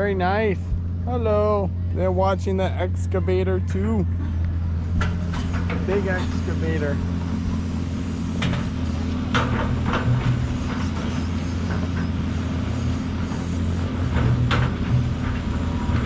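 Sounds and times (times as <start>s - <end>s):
excavator diesel engine running: 0.0s - 16.0s
machine knocks and clanks: 4.9s - 12.2s.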